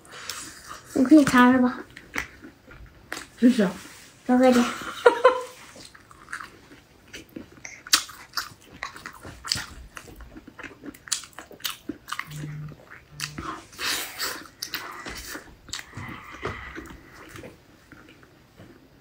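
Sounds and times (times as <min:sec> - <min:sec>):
biting and chewing crunches: 0:05.8 - 0:18.8
short low hums: 0:12.3 - 0:13.9.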